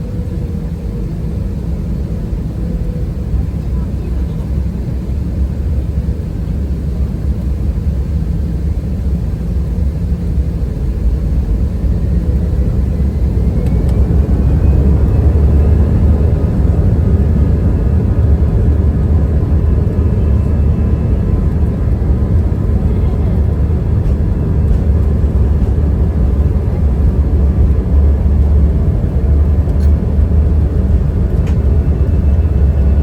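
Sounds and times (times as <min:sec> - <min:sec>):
jet engines rumbling in cabin: 0:00.0 - 0:33.0
engine whine rising in pitch: 0:12.0 - 0:33.0.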